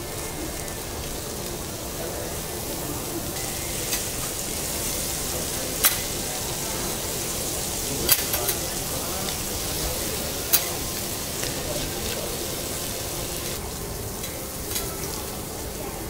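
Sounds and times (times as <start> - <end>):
butter and meat sizzling on griddle: 0.0 - 16.0.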